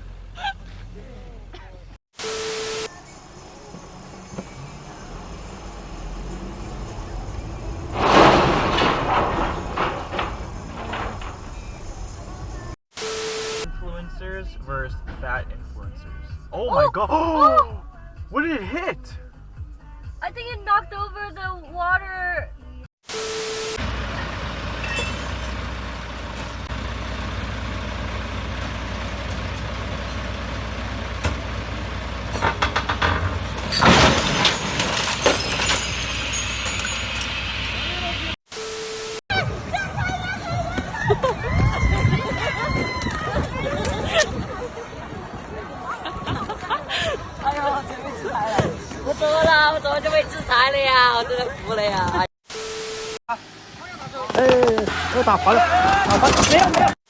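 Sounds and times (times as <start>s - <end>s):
heavy vehicle engine running: 2.9s - 12.8s, 23.4s - 34.1s, 35.0s - 38.4s
loud crash: 6.5s - 12.8s, 32.3s - 38.0s
loud clattering burst: 7.8s - 12.8s
low rumble: 13.7s - 16.7s.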